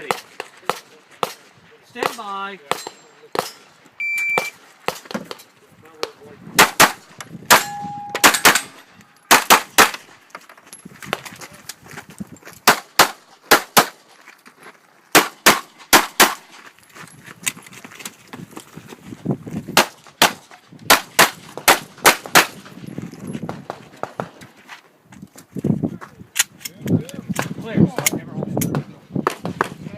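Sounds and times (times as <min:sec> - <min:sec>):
pistol shots: 0:06.6 - 0:10.0, 0:15.1 - 0:16.4.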